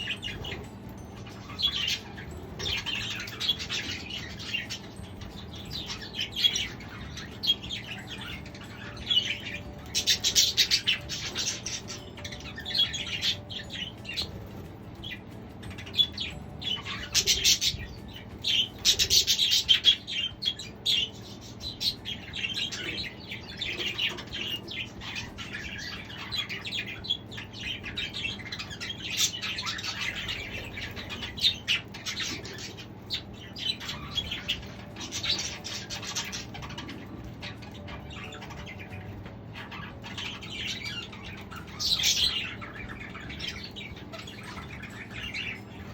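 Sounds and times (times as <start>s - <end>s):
budgerigars chirping and chattering: 0.0s - 45.9s.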